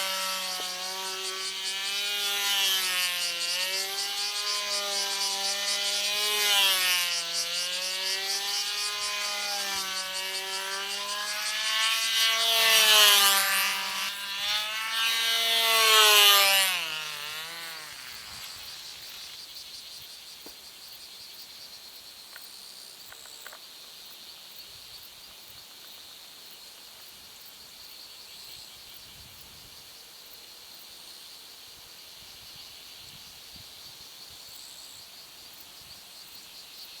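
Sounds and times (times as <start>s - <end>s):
model plane engine high pitch: 0.0s - 19.3s.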